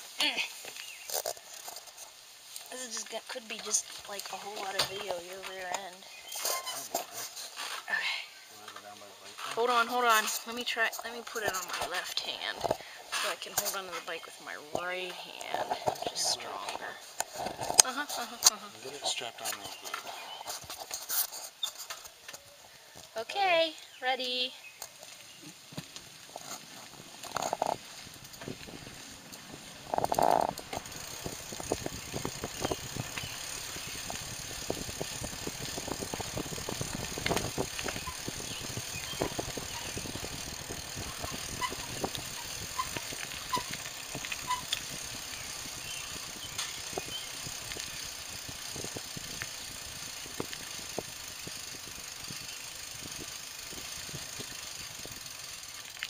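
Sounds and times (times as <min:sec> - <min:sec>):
bicycle rattling and clicking: 0:00.6 - 0:07.9, 0:08.5 - 0:56.0
wind noise on microphone: 0:27.4 - 0:55.2.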